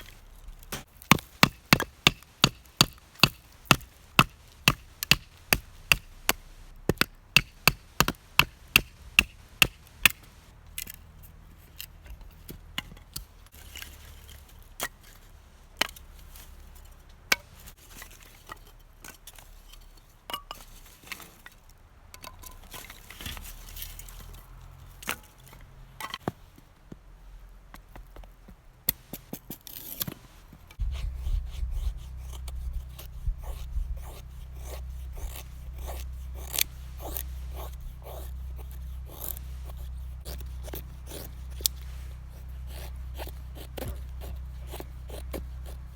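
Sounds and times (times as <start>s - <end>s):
blade chopping firewood: 0.1s - 11.0s, 28.9s - 45.9s
wood scraping: 29.0s - 45.9s
low rumble: 30.8s - 45.6s.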